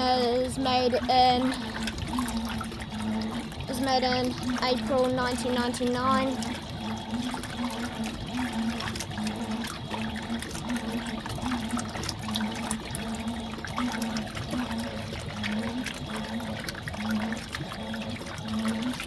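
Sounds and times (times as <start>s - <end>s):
washing machine motor hum: 0.0s - 19.0s
water swishing and trickling: 0.0s - 19.0s.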